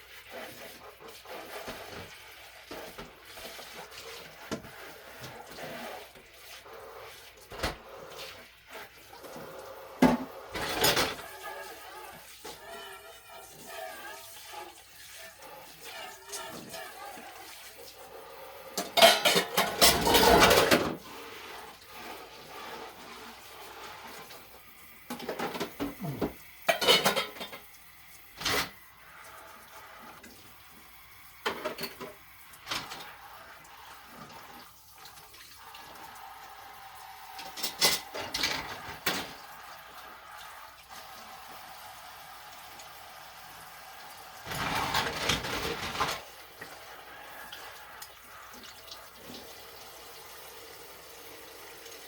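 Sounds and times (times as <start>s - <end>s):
dishes and cutlery clattering: 10.0s - 11.5s, 18.8s - 21.0s, 25.1s - 27.7s, 31.4s - 33.1s, 37.4s - 39.4s, 44.4s - 46.3s.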